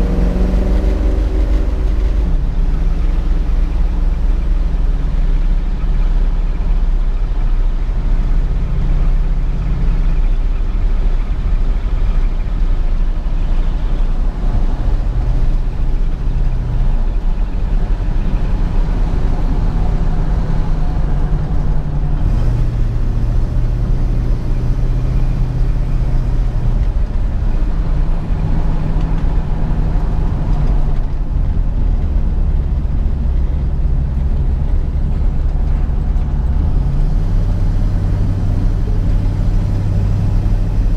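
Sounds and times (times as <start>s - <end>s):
car engine revving: 0.0s - 4.7s, 14.2s - 40.9s
road noise: 0.0s - 40.9s.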